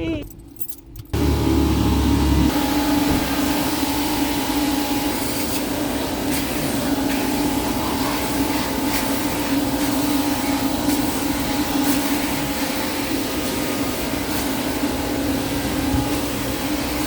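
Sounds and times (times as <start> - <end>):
vacuum motor hum over rushing air: 1.1 - 17.0.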